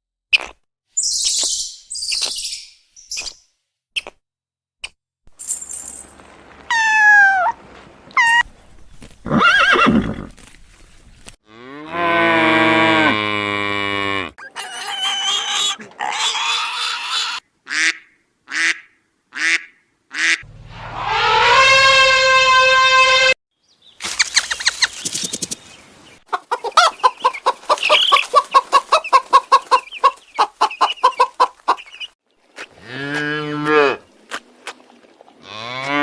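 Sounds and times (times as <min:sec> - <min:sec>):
farm animal calls: 0:12.7 - 0:18.8, 0:26.3 - 0:34.1.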